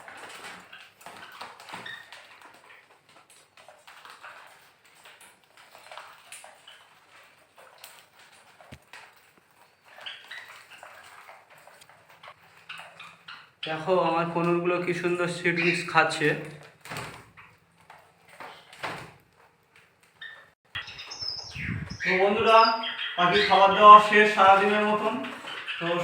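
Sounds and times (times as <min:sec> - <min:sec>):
small parrots chirping: 0:20.1 - 0:26.0.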